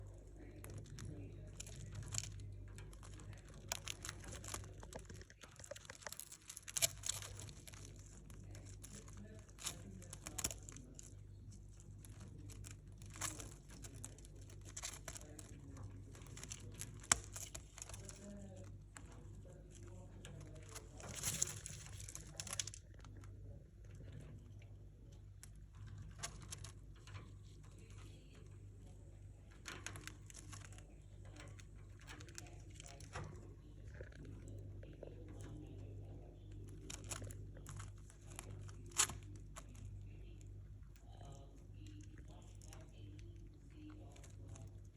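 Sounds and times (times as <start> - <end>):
bird pecking at bread: 0.0 - 44.9
low steady hum: 0.0 - 44.9.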